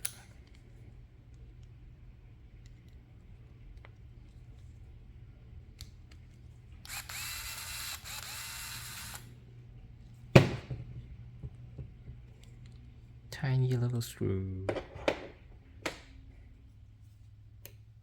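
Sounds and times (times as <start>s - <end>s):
electric screwdriver whirring: 6.8s - 9.3s.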